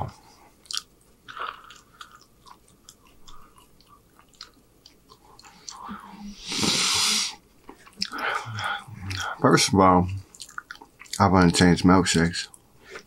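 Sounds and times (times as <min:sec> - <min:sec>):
person chewing food: 0:00.1 - 0:09.4, 0:10.0 - 0:11.6
loud breath out: 0:06.4 - 0:07.4.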